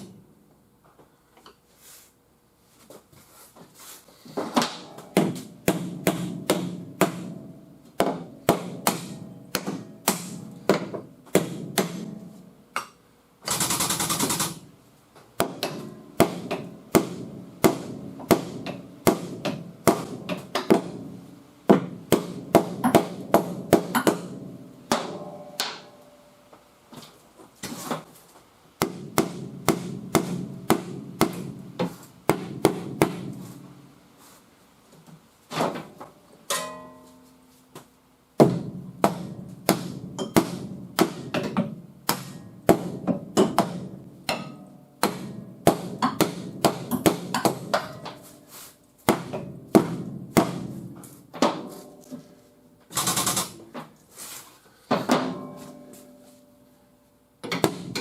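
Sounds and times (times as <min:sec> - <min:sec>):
hammer striking sheet metal: 0:04.6 - 0:12.9, 0:15.4 - 0:26.0, 0:28.8 - 0:33.5, 0:36.5 - 0:37.2, 0:38.4 - 0:48.3, 0:49.0 - 0:52.1, 0:57.4 - 0:58.0.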